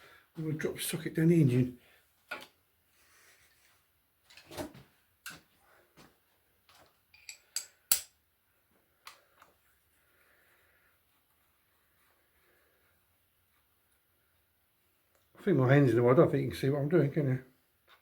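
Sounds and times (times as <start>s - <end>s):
wrench clinking against metal: 7.1s - 8.1s.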